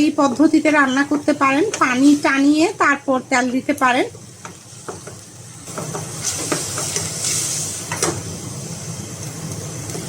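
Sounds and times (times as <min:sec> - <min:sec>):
paste hissing in a pan: 0:04.6 - 0:10.0.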